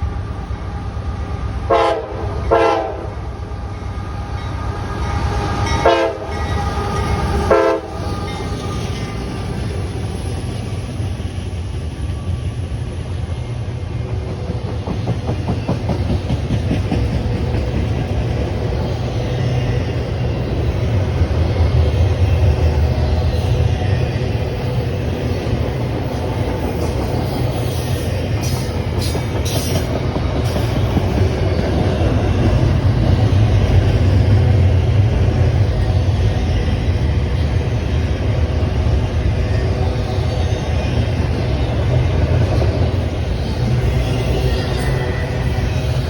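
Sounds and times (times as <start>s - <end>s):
train rumble: 0.0s - 46.0s
locomotive horn blasts: 1.7s - 3.2s, 5.8s - 6.4s, 7.5s - 8.1s.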